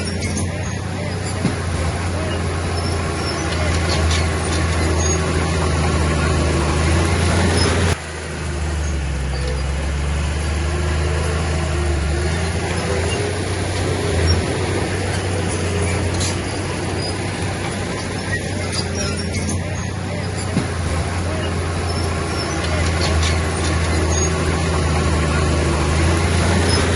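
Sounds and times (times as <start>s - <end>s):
heavy diesel engine droning: 0.0s - 26.9s.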